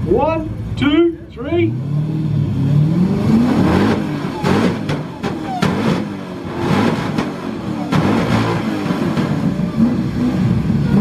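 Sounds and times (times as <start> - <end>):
engine revving hard: 1.6 - 11.0
exhaust cracks: 3.0 - 11.0.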